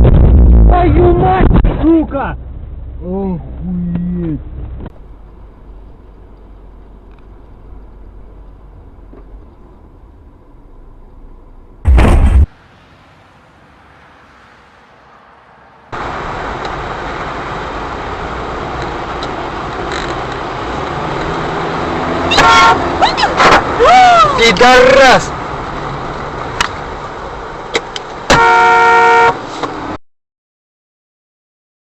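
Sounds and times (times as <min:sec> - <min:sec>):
car road and engine noise: 0:00.0 - 0:30.0
loud bang: 0:11.8 - 0:12.6.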